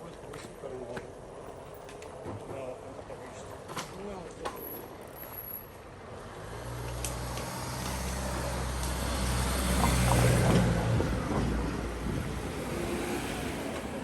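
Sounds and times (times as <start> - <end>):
vehicle driving past: 6.2 - 14.0.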